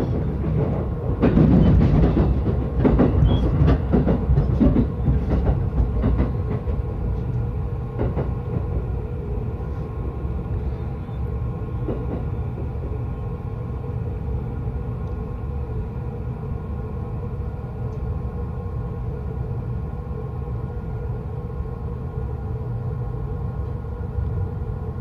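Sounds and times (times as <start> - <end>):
train knocks and clunks: 0.0 - 13.6
train rumble: 0.0 - 25.0.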